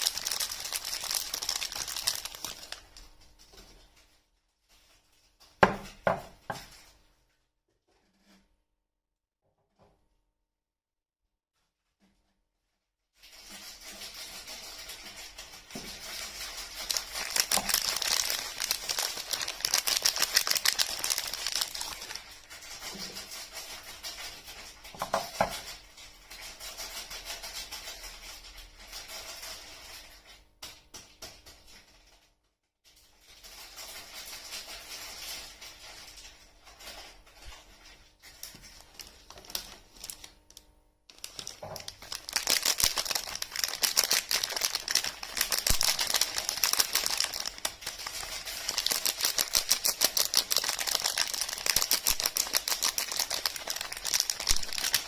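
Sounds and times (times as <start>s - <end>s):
soap wrapping crinkling: 0.0s - 3.2s, 13.9s - 23.2s, 37.8s - 55.0s.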